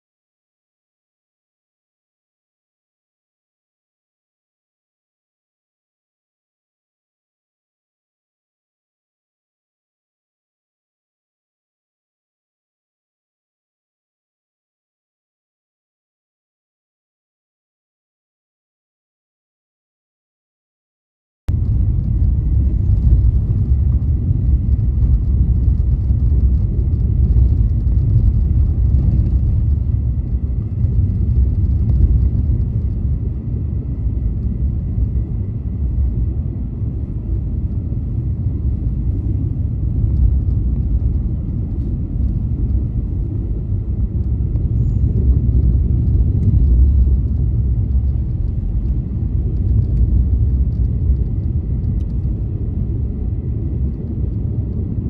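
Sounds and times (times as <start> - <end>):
car engine and tyres rumbling: 21.5 - 55.0.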